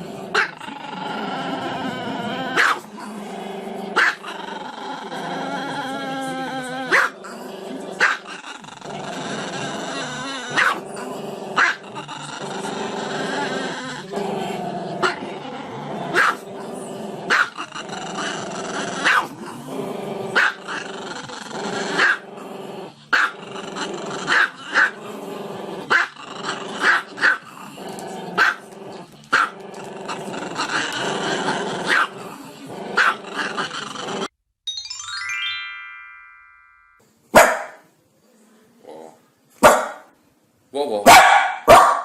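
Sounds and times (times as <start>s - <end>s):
dog growling: 0.0s - 34.3s
dog barking: 2.6s - 2.8s, 4.0s - 4.2s, 6.9s - 7.2s, 10.6s - 10.8s, 16.1s - 16.4s, 19.0s - 19.3s, 22.0s - 22.2s, 26.8s - 27.4s, 28.4s - 28.6s, 31.9s - 32.1s, 33.0s - 33.2s, 37.4s - 37.8s, 39.6s - 40.1s, 41.0s - 42.0s.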